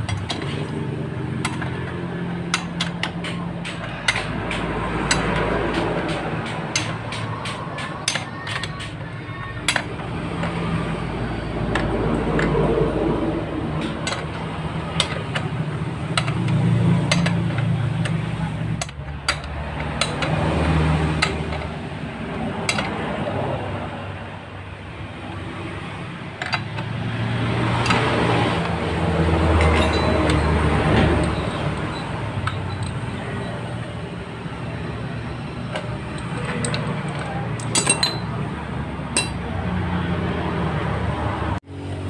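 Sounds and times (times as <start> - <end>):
metal tools clinking: 0.0 - 12.6, 13.7 - 21.8, 27.6 - 33.8, 35.6 - 38.5, 39.1 - 39.5.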